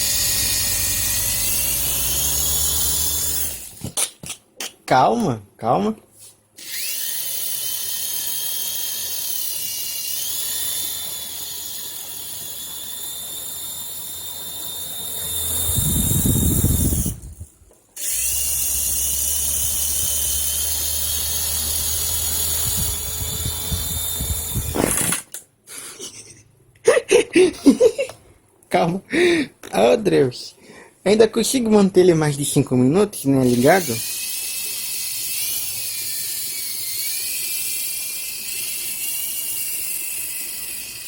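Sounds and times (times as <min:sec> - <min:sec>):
toy helicopter rotor whine: 0:00.0 - 0:03.9, 0:06.6 - 0:25.3, 0:33.4 - 0:41.0.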